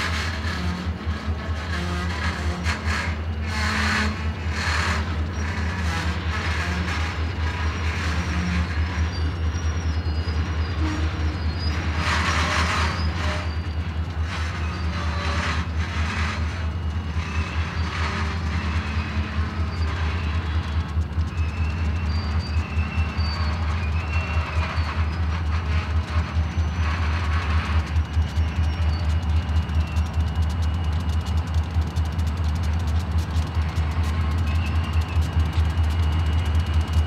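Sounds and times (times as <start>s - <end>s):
diesel locomotive engine rumble: 0.0s - 37.0s
rail and brake noise: 0.0s - 37.0s.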